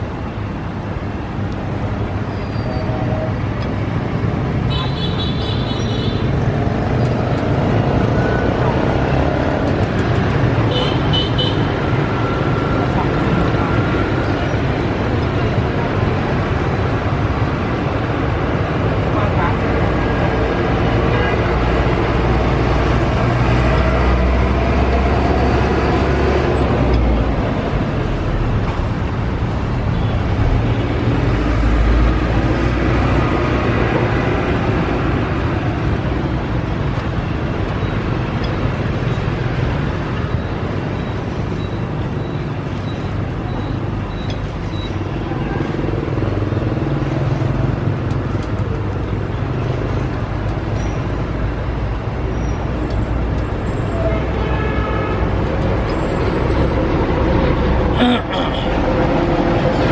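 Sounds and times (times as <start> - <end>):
cars passing: 0.0 - 59.9
motorbikes passing: 6.2 - 54.4.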